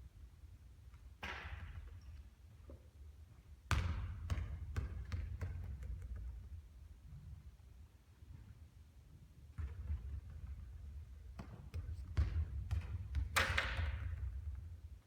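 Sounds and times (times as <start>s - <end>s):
basketball bouncing on court: 3.7s - 6.5s, 9.6s - 14.8s
basketball hitting with rattle: 11.4s - 14.4s.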